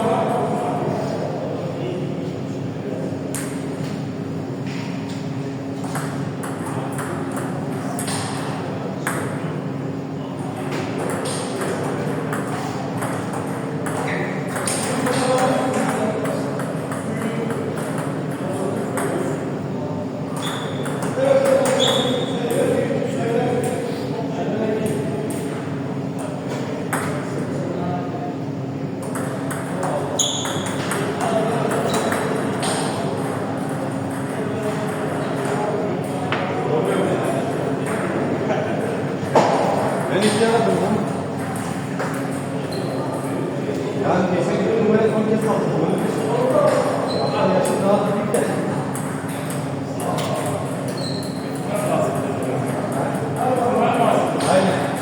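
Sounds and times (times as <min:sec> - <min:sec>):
short high squeak: 0:21.7 - 0:22.4, 0:50.9 - 0:51.6.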